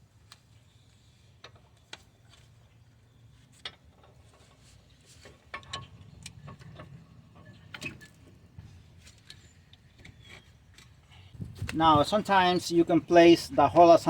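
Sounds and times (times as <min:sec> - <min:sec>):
metallic clicks and knocks: 0:05.2 - 0:08.4.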